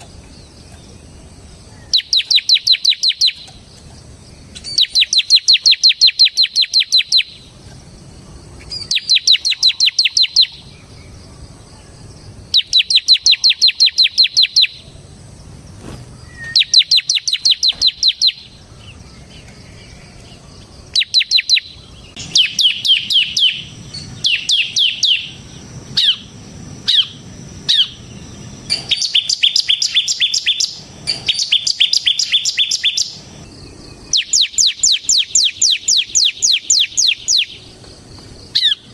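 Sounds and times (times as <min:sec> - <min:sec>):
bird singing fast sharp bursts: 0:01.8 - 0:03.5, 0:04.5 - 0:07.6, 0:08.6 - 0:11.0, 0:12.4 - 0:15.0, 0:16.2 - 0:18.7, 0:20.9 - 0:37.7
bird downward-sliding notes: 0:20.2 - 0:37.6.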